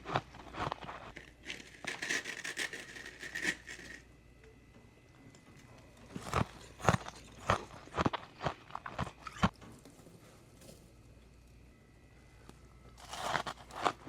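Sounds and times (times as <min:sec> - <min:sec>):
icicles being chewed: 0:00.0 - 0:02.7, 0:04.4 - 0:11.7, 0:12.4 - 0:14.0.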